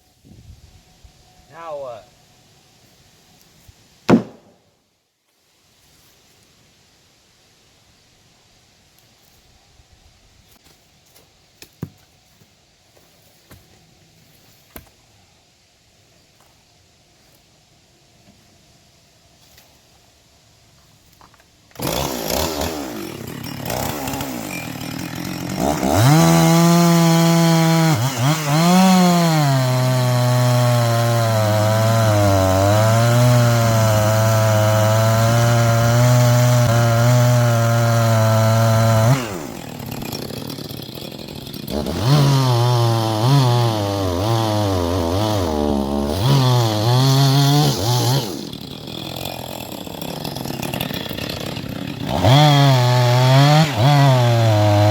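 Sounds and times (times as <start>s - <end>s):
chainsaw cutting log: 4.1s - 4.6s, 21.7s - 54.9s.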